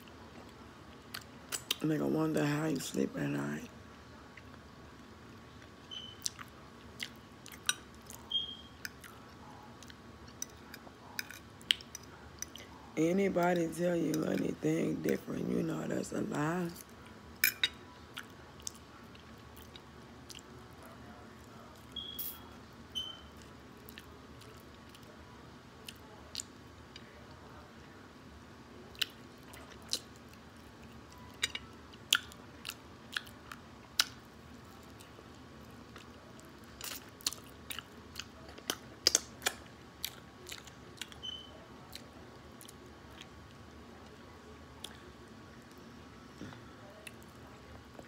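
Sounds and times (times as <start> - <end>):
wet chewing smacks and clicks: 5.6 - 8.2, 32.0 - 35.2, 35.9 - 41.3, 41.9 - 43.6.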